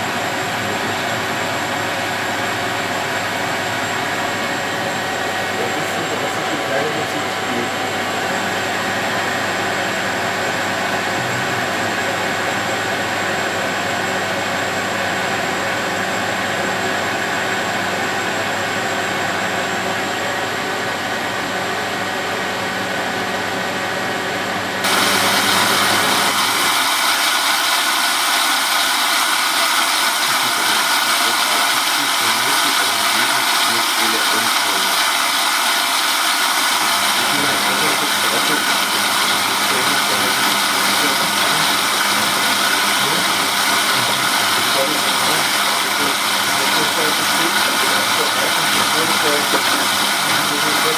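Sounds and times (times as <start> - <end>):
washing machine whine: 0.0 - 50.9
loud hissy noise: 24.8 - 50.9.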